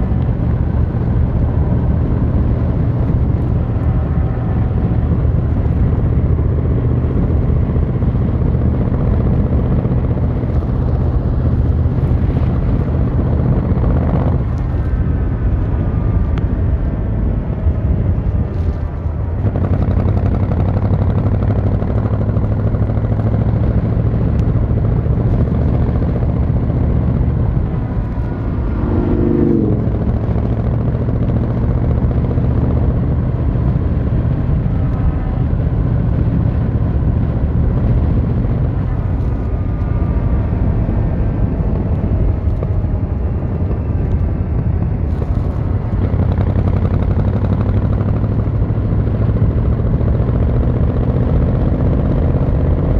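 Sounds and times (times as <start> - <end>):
motorcycle engine running: 0.0 - 16.3, 18.5 - 52.9.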